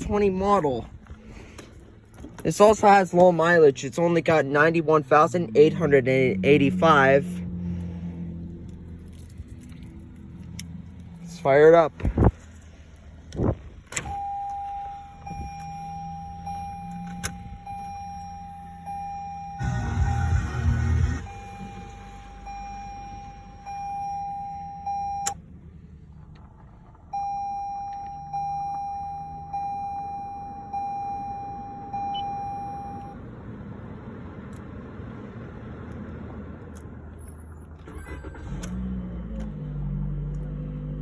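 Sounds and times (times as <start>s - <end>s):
car engine starting and idling: 0.0s - 41.0s
dashboard warning chime pinging: 14.0s - 25.4s, 27.1s - 33.2s.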